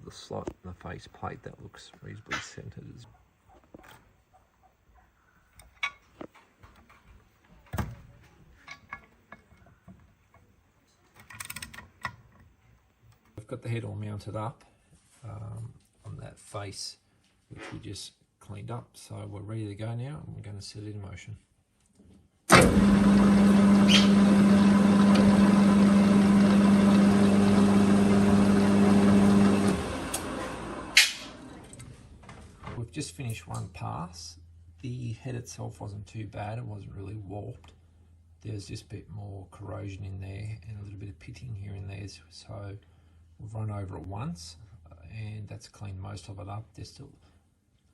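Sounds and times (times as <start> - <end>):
metal lathe humming: 22.5 - 31.6.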